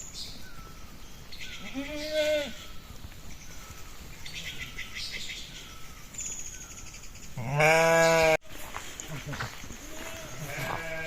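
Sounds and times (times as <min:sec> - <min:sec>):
sheep bleating: 0:01.6 - 0:02.6, 0:07.4 - 0:08.4, 0:09.1 - 0:11.0.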